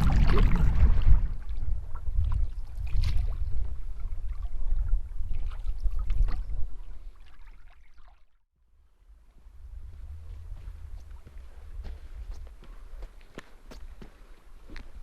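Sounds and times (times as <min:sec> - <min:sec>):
wind rumble on microphone: 0:00.0 - 0:07.1, 0:08.7 - 0:14.1
water gurgling around canoe: 0:00.0 - 0:08.2
paddle splashes: 0:00.0 - 0:08.3.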